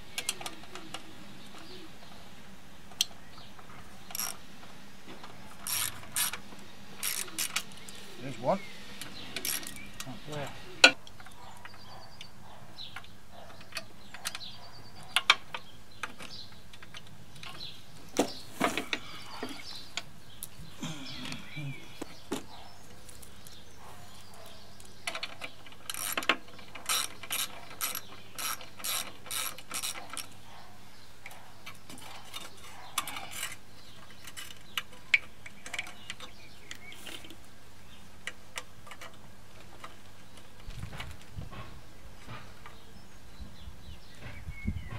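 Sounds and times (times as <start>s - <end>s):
ratchet clicking: 4.1s - 4.4s, 5.6s - 6.4s, 7.0s - 7.9s, 9.4s - 9.8s, 25.8s - 30.3s.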